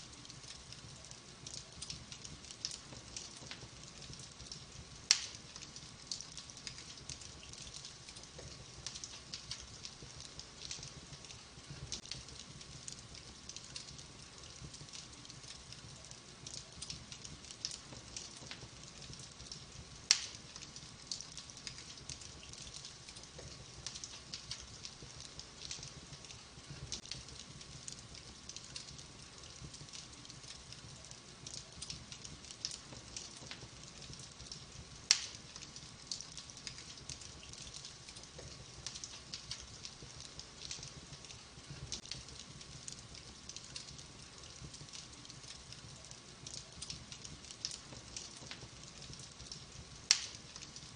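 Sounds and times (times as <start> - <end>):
wood fire crackling: 0.0 - 50.9
sharp pops of burning wood: 0.2 - 15.7, 16.4 - 30.4, 31.4 - 45.4, 46.4 - 50.9.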